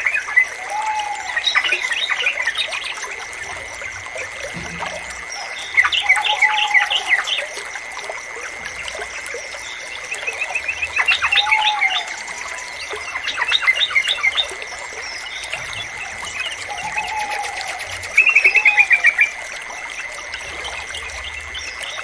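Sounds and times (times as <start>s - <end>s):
running water trickling: 0.0s - 22.0s
bird chirping: 9.6s - 19.2s.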